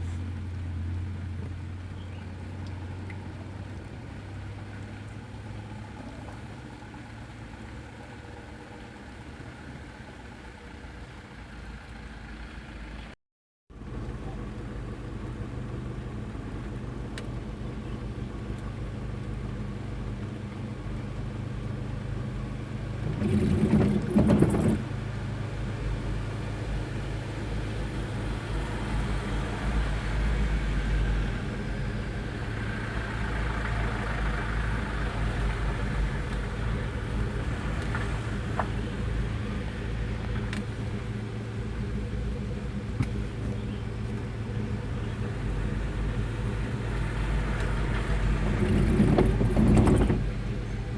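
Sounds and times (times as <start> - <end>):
truck engine running: 13.7 - 50.9.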